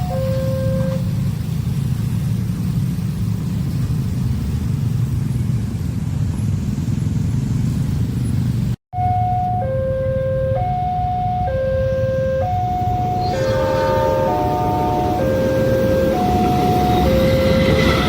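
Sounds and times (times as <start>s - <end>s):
two-tone crossing warning alarm: 0.0s - 1.1s, 9.0s - 18.0s
passing vehicle rumble: 0.0s - 18.0s.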